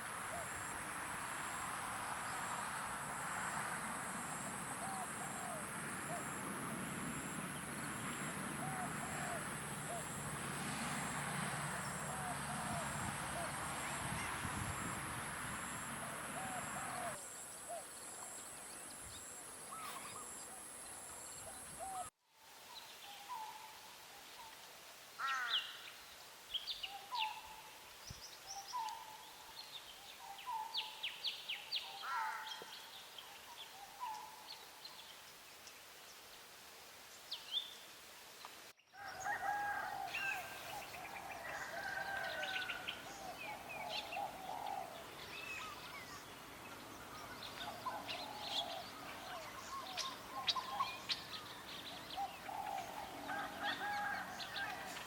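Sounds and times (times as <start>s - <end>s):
chorus of birds calling: 39.0s - 55.0s.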